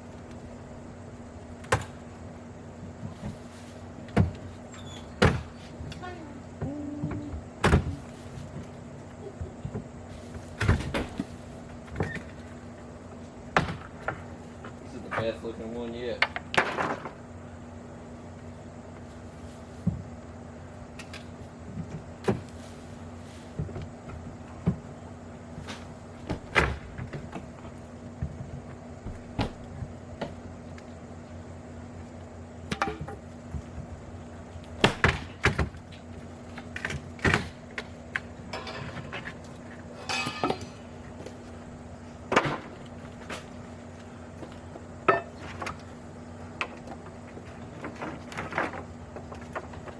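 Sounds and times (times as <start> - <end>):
steady low hum: 0.0 - 49.9
rattling scrapes: 38.5 - 41.0.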